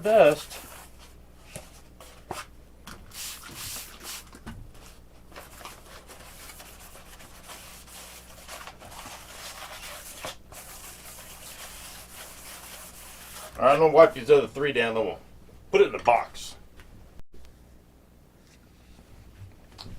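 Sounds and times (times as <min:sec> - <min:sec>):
towel scrubbing foam: 0:03.1 - 0:04.4, 0:05.8 - 0:13.6.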